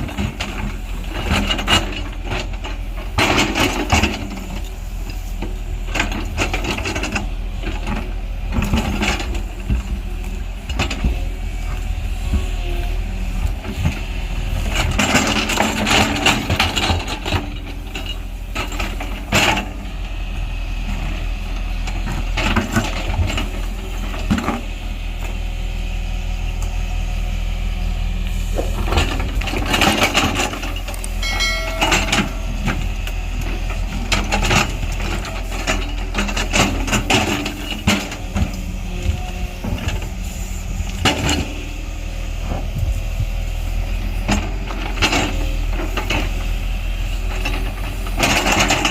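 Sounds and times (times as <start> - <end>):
heavy machinery diesel engine: 0.0 - 48.9
metallic clanks and knocks: 28.6 - 38.6.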